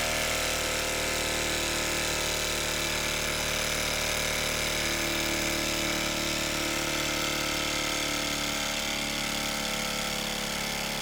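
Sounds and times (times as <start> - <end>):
miniature steam engine running fast: 0.0 - 11.0.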